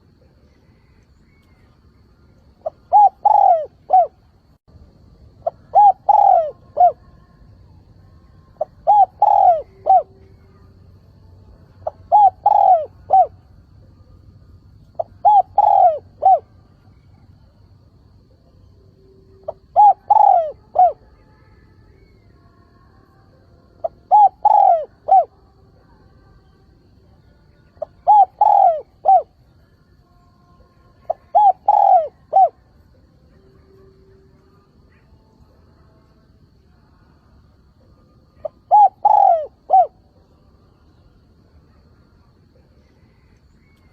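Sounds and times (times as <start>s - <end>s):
dove cooing: 2.6s - 4.2s, 5.4s - 7.2s, 8.5s - 10.8s, 11.8s - 13.5s, 14.9s - 17.3s, 19.4s - 21.2s, 23.8s - 25.4s, 27.7s - 29.4s, 30.9s - 32.7s, 38.3s - 40.0s.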